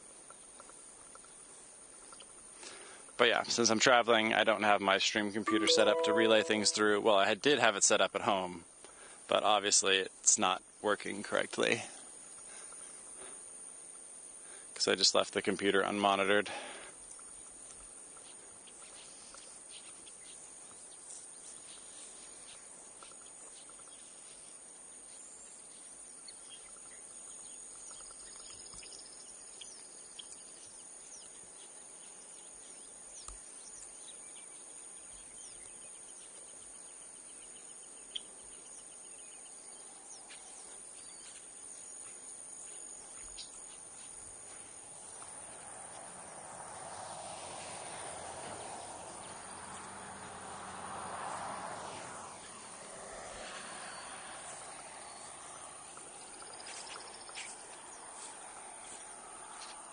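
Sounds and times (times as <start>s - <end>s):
bird chirps: 5.5s - 7.1s
insect drone: 6.8s - 59.9s.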